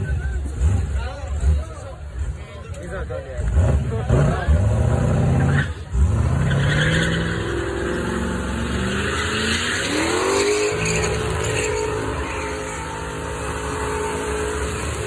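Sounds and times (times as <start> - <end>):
car engine revving hard: 3.4 - 15.0
tyres spinning: 6.3 - 15.0.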